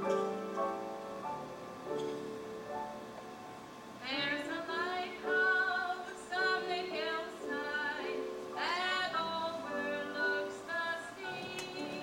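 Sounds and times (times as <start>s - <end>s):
woman singing gospel song: 4.0s - 12.0s.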